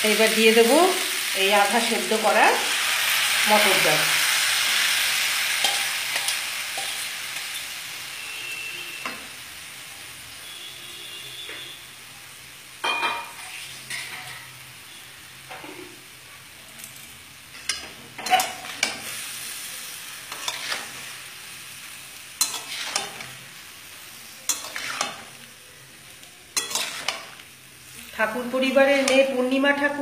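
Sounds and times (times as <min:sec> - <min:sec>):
vegetables sizzling in oil: 0:00.0 - 0:30.0
spatula scraping and knocking pan: 0:20.3 - 0:21.0, 0:22.4 - 0:23.4, 0:24.5 - 0:25.4, 0:26.6 - 0:27.4.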